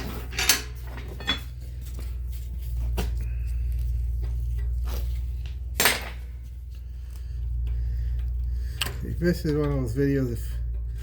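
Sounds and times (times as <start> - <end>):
hand tools clanking on metal: 0.0 - 1.6
steady low hum: 0.0 - 11.0.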